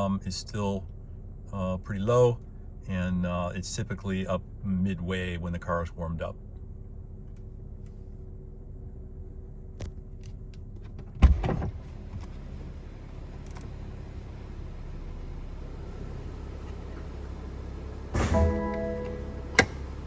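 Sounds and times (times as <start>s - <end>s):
car engine running: 0.0s - 20.0s
loud thump: 18.1s - 19.9s.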